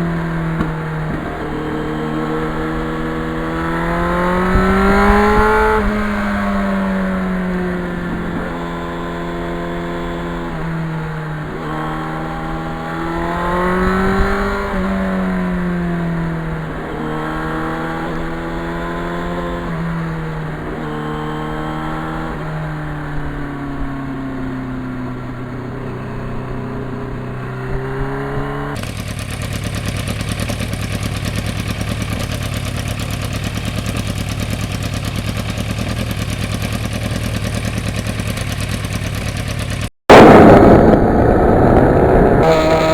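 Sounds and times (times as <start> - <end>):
motorcycle engine revving: 0.0 - 42.9
engine drone with hiss: 40.1 - 42.9.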